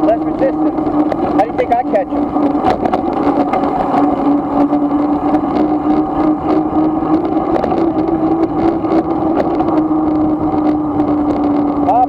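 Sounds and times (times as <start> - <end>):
electric motor whine: 0.0 - 12.0
rough road noise: 0.0 - 12.0.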